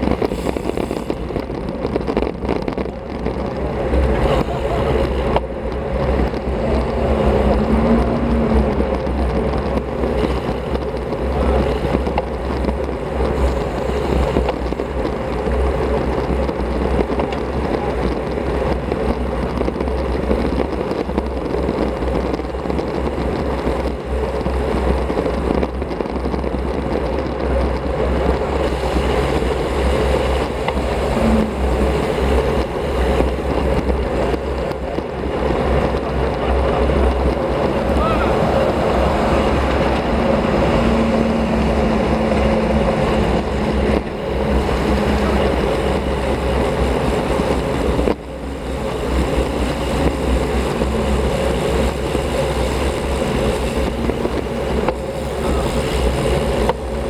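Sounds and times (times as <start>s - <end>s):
wind rushing: 0.0s - 15.3s, 28.1s - 57.0s
road rumble: 0.0s - 57.0s.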